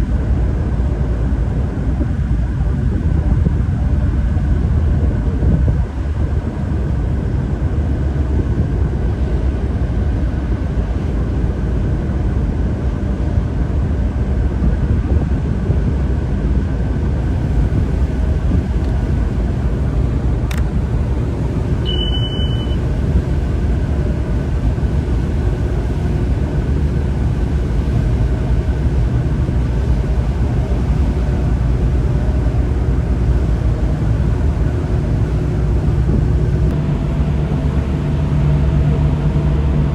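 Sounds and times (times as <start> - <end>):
boat engine droning: 0.0 - 14.5, 15.5 - 39.9
sharp click: 20.5 - 20.7
short high beep: 21.8 - 22.9.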